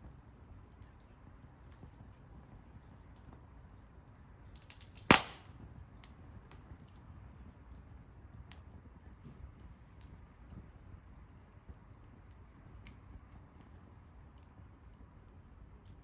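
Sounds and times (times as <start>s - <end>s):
wood fire crackling: 0.1s - 16.0s
burning wood popping: 4.5s - 6.1s.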